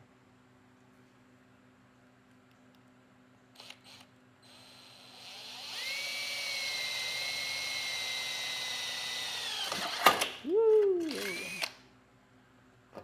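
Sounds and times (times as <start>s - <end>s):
electric drill whining: 3.6s - 10.4s, 11.0s - 11.8s.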